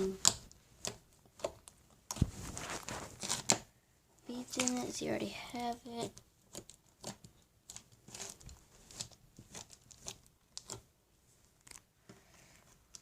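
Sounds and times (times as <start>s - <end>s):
slime being squished by hand: 0.0s - 3.7s, 5.6s - 12.0s.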